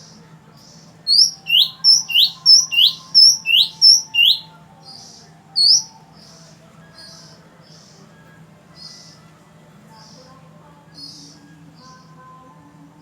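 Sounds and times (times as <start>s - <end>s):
magpie-robin whistling song: 1.1s - 6.3s.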